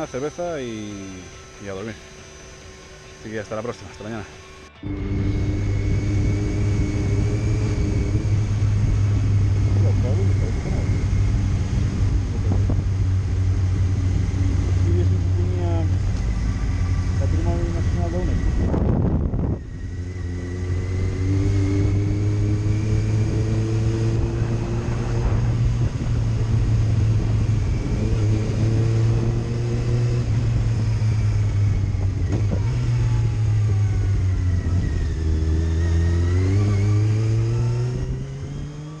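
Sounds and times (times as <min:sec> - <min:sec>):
motorcycle engine accelerating: 0:00.0 - 0:39.0
road and wind noise: 0:00.0 - 0:39.0.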